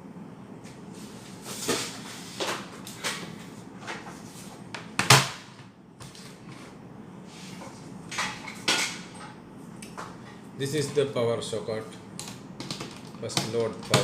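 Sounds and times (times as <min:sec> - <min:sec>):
handling knocks and clicks: 0:12.2 - 0:14.0.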